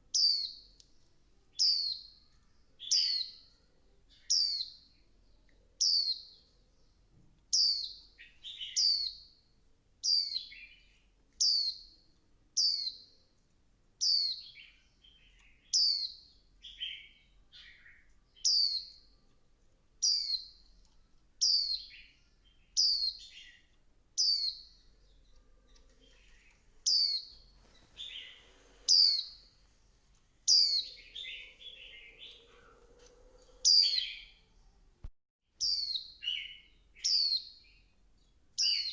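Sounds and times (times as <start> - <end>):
soft low bird chirps: 0.0 - 13.4, 14.0 - 38.9
bird high downward-sliding calls: 27.9 - 29.5, 30.5 - 34.4.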